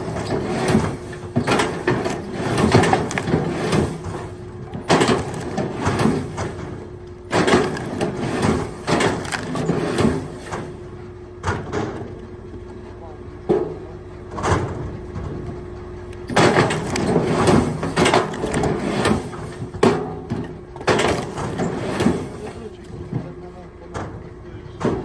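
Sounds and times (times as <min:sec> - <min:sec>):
firewood clattering: 0:00.0 - 0:10.9, 0:16.3 - 0:23.4.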